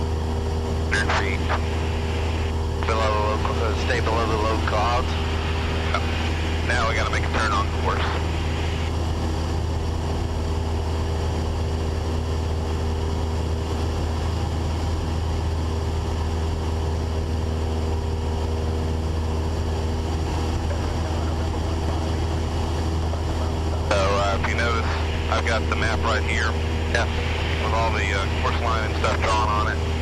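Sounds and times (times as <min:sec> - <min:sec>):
aircraft engine and propeller droning: 0:00.0 - 0:30.0.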